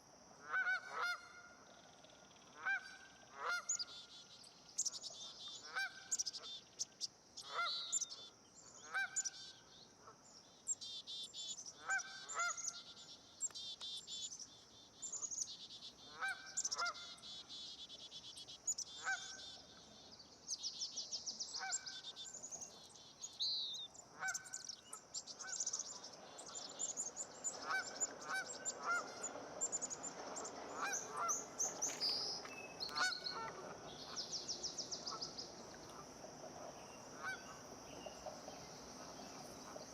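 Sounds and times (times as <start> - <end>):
nasal honk-like bird calls: 0.4 - 1.6, 2.6 - 4.1, 11.8 - 12.9, 16.1 - 17.4, 19.0 - 19.5, 27.6 - 39.9
birds chirping and trilling: 10.8 - 39.9.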